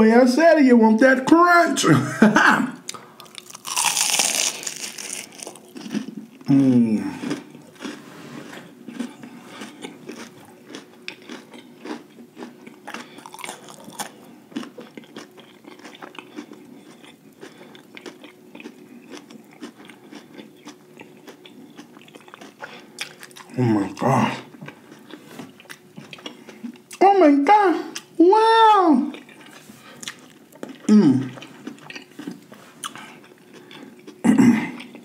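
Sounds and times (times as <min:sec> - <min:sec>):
loud crunch of biting fried food: 0:02.9 - 0:08.0, 0:08.9 - 0:24.2
crunchy chewing: 0:02.9 - 0:27.0, 0:29.1 - 0:35.0.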